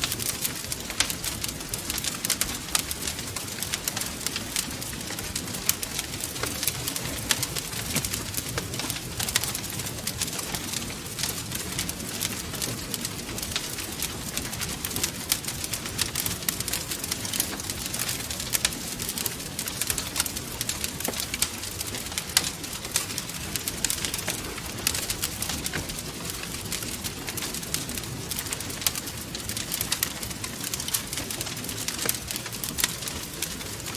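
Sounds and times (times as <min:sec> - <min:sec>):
low rumble of flames: 0:00.0 - 0:33.9
wood fire crackling: 0:00.0 - 0:33.9.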